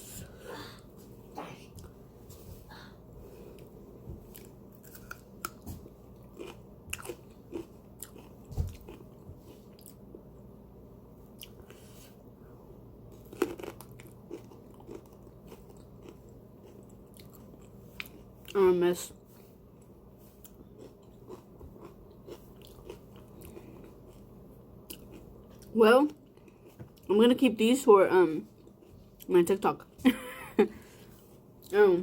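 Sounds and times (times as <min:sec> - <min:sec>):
person chewing crunchy food: 0:03.6 - 0:10.1, 0:13.1 - 0:18.6, 0:19.7 - 0:27.1, 0:28.6 - 0:29.3.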